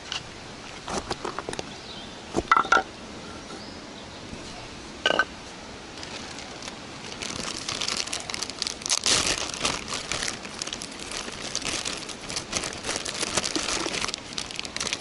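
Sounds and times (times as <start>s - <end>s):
crinkly rustling and crackling: 5.9s - 15.0s.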